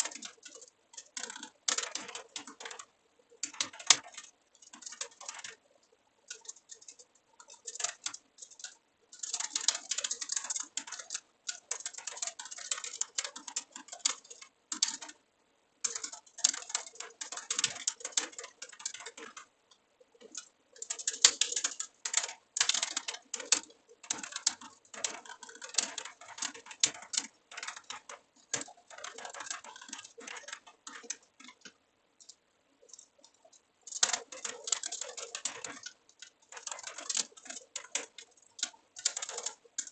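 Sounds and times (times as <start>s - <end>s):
computer keyboard typing: 0.0s - 15.2s, 15.8s - 39.9s.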